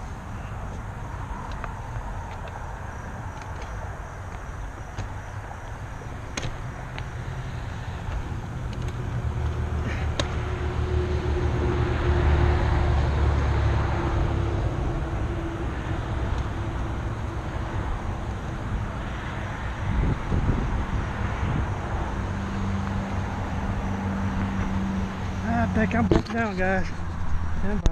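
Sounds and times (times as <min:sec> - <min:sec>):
vehicle passing by: 0:06.5 - 0:27.9.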